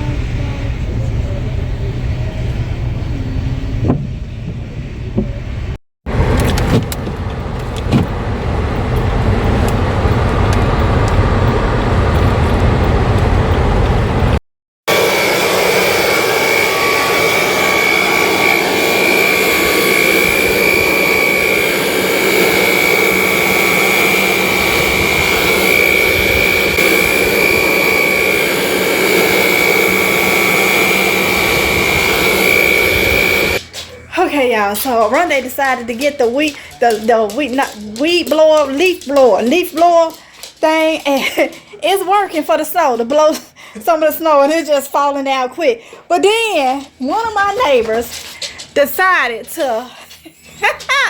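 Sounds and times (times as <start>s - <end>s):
car rumbling on the move: 0.0s - 14.4s
leaf blower running: 6.1s - 33.6s.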